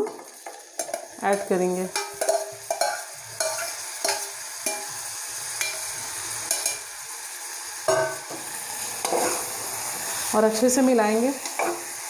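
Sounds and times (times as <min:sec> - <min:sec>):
spoon clinking and scraping pot: 0:00.0 - 0:04.9, 0:05.6 - 0:05.9, 0:06.5 - 0:06.8, 0:07.9 - 0:08.4, 0:09.0 - 0:09.6, 0:11.4 - 0:11.9
corn sizzling in butter: 0:00.0 - 0:12.0.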